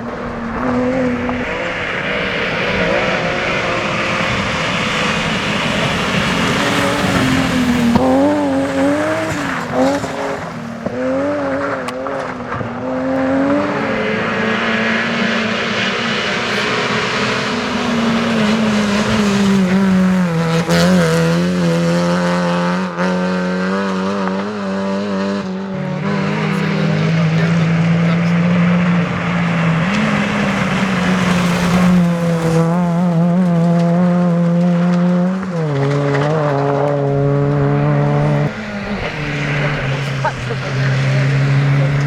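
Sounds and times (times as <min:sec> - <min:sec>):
rally car engine revving: 0:00.0 - 0:42.0.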